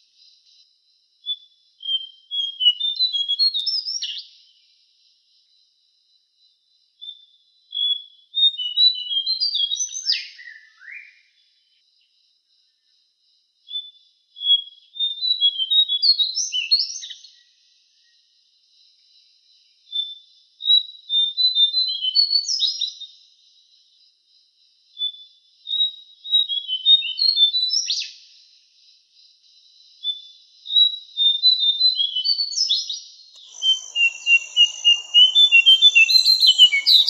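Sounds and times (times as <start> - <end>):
faint high hiss: 33.4 - 37.0
songbird chirping: 33.4 - 37.0.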